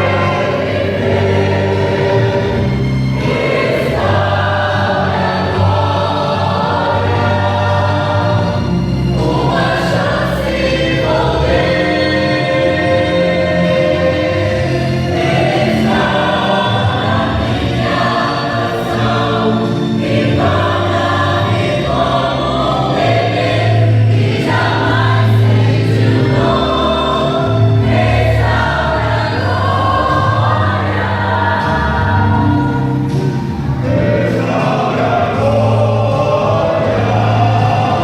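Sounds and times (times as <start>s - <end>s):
bass accompaniment: 0.0s - 38.0s
choir singing gospel: 0.0s - 38.0s.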